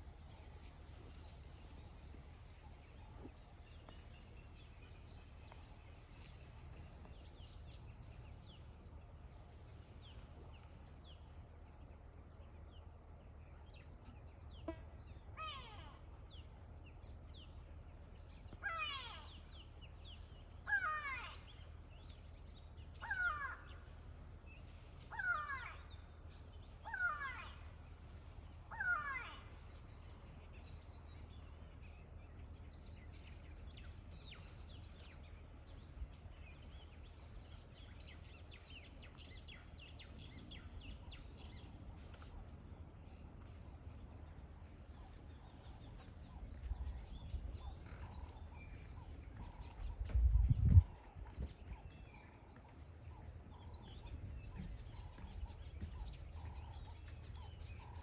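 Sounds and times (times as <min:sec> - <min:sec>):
faint bird calls: 0:00.0 - 0:58.0
bird harsh calls: 0:18.6 - 0:19.9, 0:23.0 - 0:23.9, 0:25.1 - 0:26.1, 0:26.7 - 0:27.8, 0:28.7 - 0:29.8.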